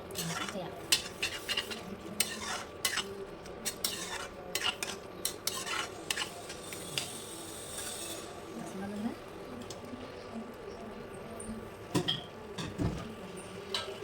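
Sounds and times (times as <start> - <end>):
spoon stirring and scraping in pan: 0.0 - 8.4
gravy sizzling: 0.0 - 14.0.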